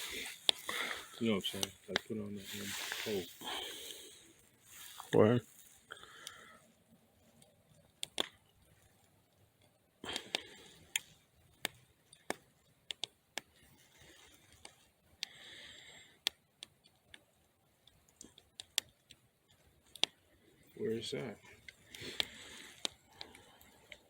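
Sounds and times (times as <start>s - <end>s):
short rustle: 0.0s - 5.9s
sharp clicks and light knocks: 9.6s - 13.6s.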